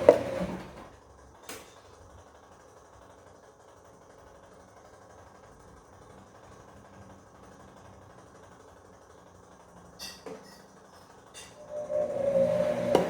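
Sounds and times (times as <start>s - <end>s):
washing machine drum motor whine: 0.0s - 1.2s, 11.4s - 13.0s.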